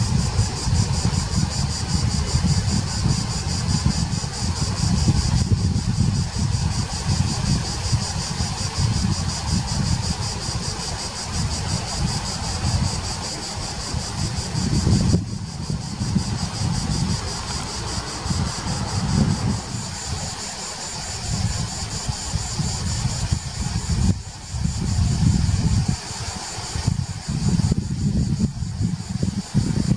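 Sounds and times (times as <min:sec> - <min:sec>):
stream rushing over rocks: 0:00.0 - 0:27.6
insects chirping: 0:00.0 - 0:29.9
wind buffeting the microphone: 0:00.0 - 0:29.9.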